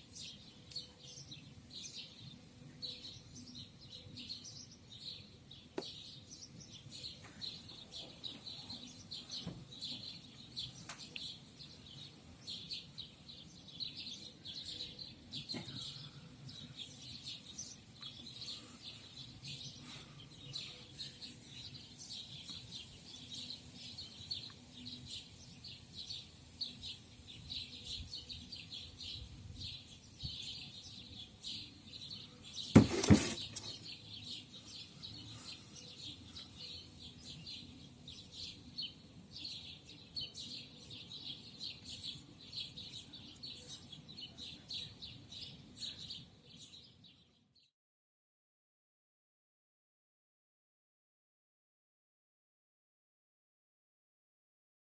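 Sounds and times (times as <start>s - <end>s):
songbirds chirping and singing: 0.0s - 47.7s
loud thump: 32.8s - 33.7s.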